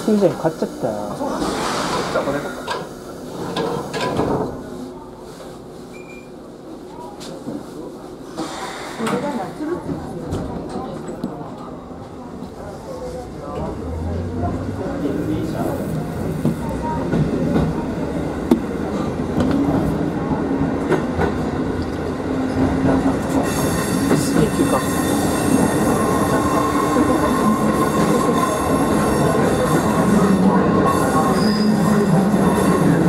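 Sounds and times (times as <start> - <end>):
wheel squeal: 31.2 - 32.0.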